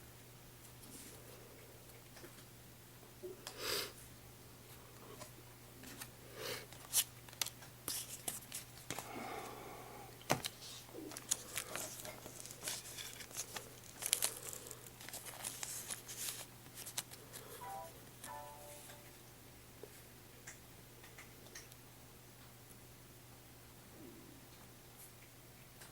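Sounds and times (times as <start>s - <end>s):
foil wrapper crinkling and tearing: 10.4s - 17.2s.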